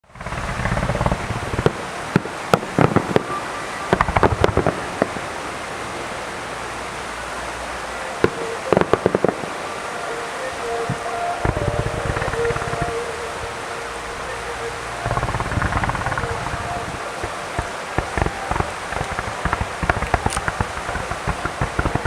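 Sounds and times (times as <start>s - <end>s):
background hiss: 0.0s - 22.0s
fireworks bangs: 0.2s - 5.3s, 8.2s - 9.5s, 10.6s - 13.1s, 15.0s - 22.0s.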